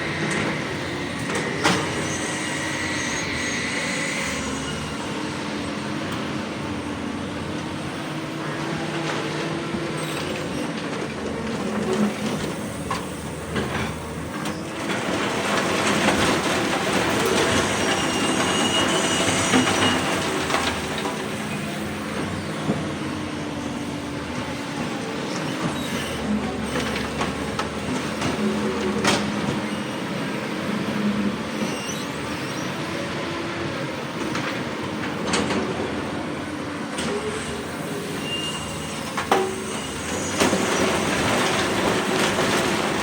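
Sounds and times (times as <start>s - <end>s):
excavator diesel engine: 0.0s - 43.0s
thin high squeal: 38.0s - 40.6s.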